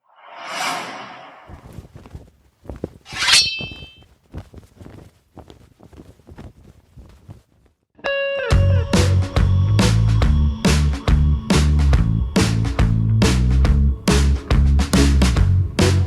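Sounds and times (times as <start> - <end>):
metallic clang: 3.1 - 4.0.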